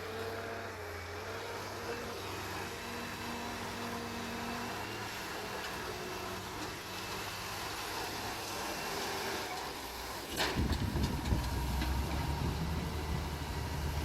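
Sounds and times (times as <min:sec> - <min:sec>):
diesel engine running: 0:10.3 - 0:14.0.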